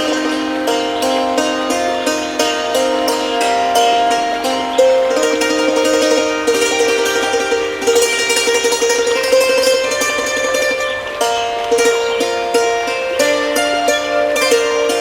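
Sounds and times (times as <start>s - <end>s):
hammered dulcimer melody: 0.0s - 15.0s.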